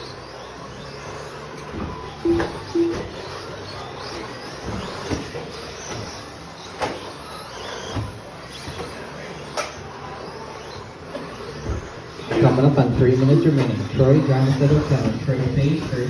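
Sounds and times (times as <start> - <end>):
rc truck motor whines: 0.0 - 16.0
trucks knocking on track: 1.7 - 3.3
short beeps: 2.2 - 3.2.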